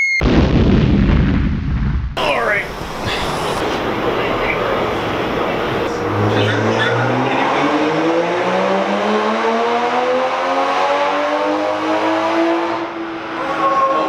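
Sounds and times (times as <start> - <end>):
car engine revving up: 2.9 - 14.0.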